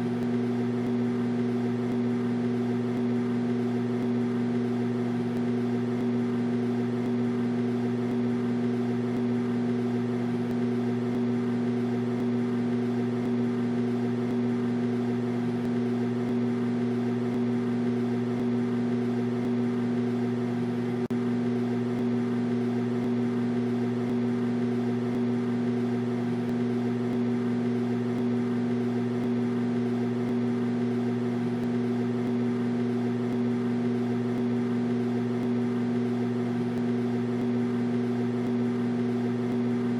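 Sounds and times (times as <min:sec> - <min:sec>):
microwave oven humming: 0:00.0 - 0:39.9.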